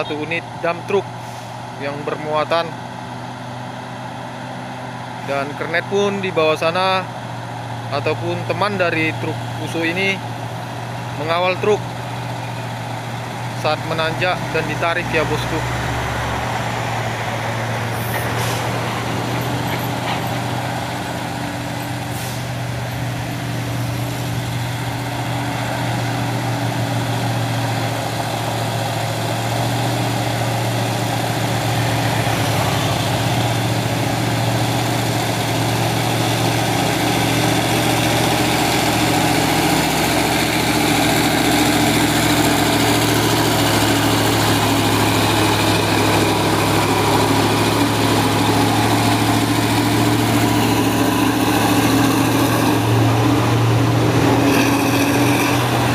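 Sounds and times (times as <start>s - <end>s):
diesel truck engine pulling uphill: 0.0s - 55.9s
short air hisses: 22.1s - 22.5s.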